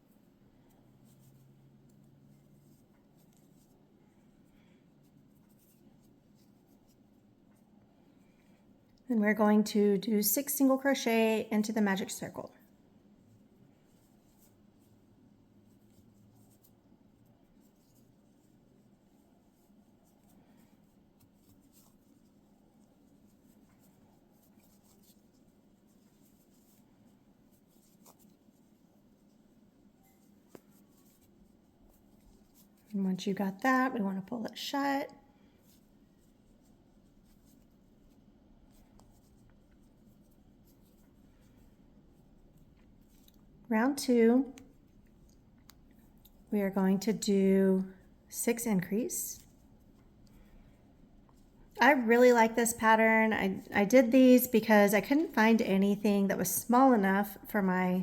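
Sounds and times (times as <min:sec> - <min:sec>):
crochet hook rustling yarn: 0:00.0 - 0:58.0
low steady hum: 0:00.0 - 0:58.0
yarn scratching on crochet hook: 0:17.6 - 0:41.2.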